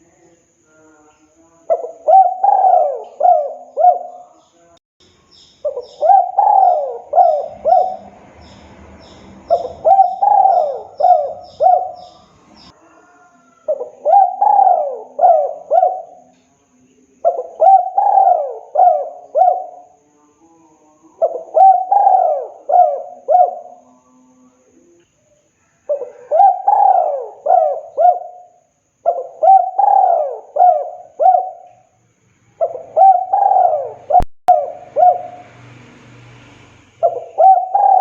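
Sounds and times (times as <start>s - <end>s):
faint high bird chirps: 0.0s - 35.5s
dove cooing: 1.7s - 4.5s, 5.6s - 16.3s, 17.2s - 20.0s, 21.1s - 24.1s, 25.7s - 31.9s, 32.6s - 35.5s, 37.0s - 38.0s.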